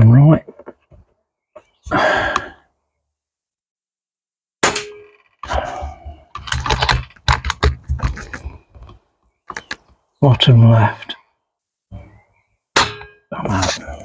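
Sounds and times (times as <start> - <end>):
air rifle shot: 4.6 - 5.0
rifle action clicks and knocks: 6.2 - 10.0.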